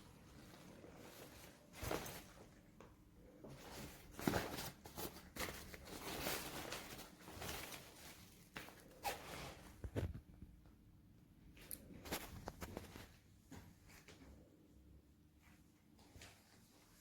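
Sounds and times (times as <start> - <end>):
nylon rustling: 0.0 - 9.8.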